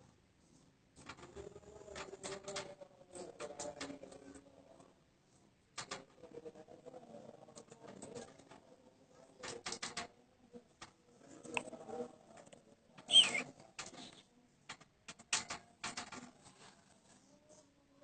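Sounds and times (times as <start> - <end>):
bird falling chirp: 13.1 - 13.4.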